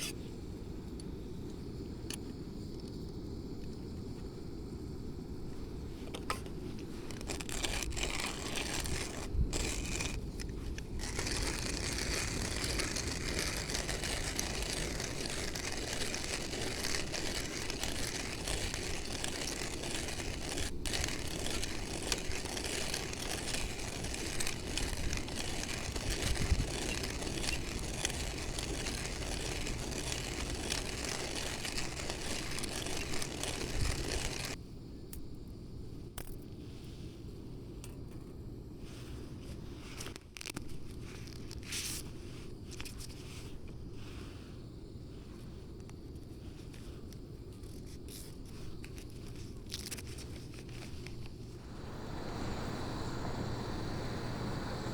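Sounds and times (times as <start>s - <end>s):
coffee grinder grinding beans: 7.0s - 34.6s, 51.6s - 54.9s.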